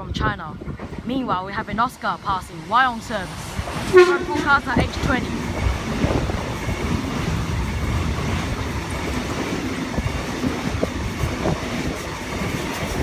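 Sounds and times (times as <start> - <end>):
train cars rumbling past: 0.0 - 13.0.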